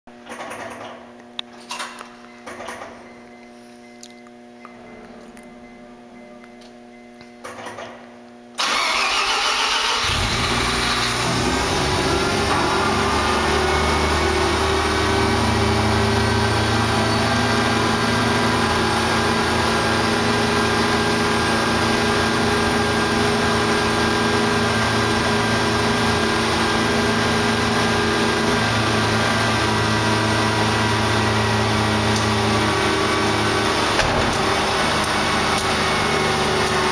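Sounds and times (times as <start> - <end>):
rotary engine starting and idling: 8.6 - 36.9.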